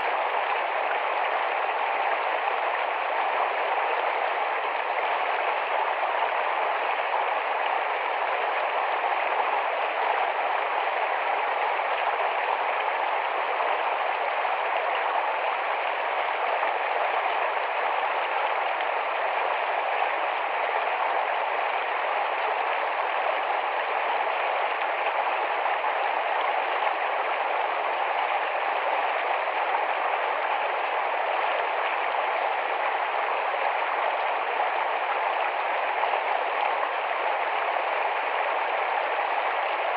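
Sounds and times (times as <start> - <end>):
fast-running stream: 0.0 - 39.9.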